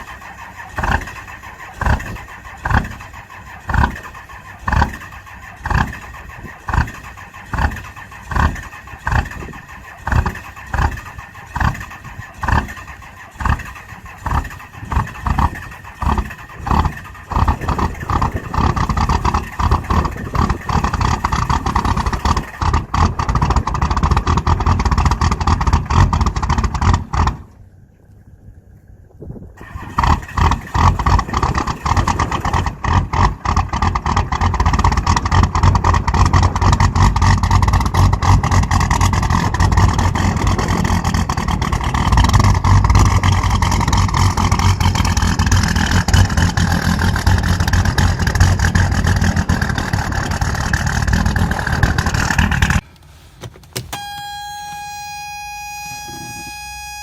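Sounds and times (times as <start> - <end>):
diesel engine starting and running: 0.0 - 57.0
steady electronic tone: 53.8 - 57.0.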